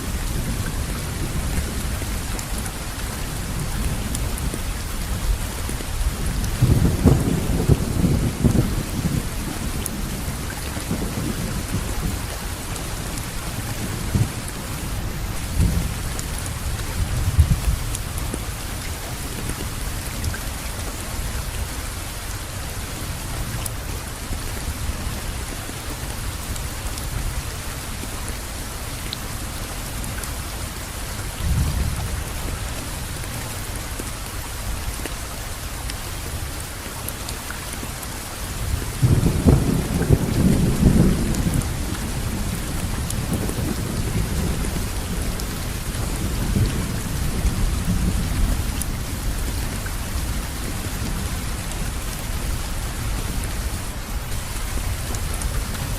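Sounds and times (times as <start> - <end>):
steady rain falling: 0.0 - 55.9
distant thunder rumbles: 39.0 - 49.2.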